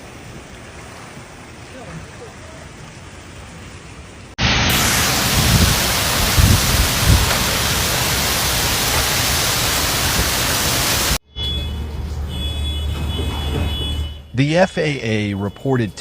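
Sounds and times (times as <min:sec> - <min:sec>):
heavy rain pouring: 0:00.0 - 0:11.2.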